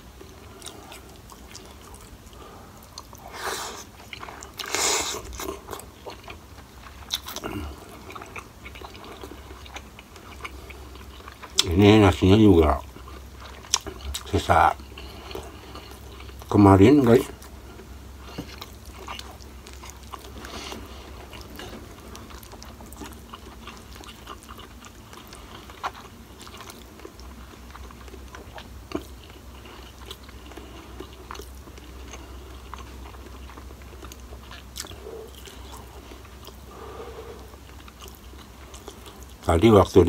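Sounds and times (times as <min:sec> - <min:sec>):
steady low hum: 0:00.0 - 0:40.0
chewing and mouth clicks: 0:00.1 - 0:40.0.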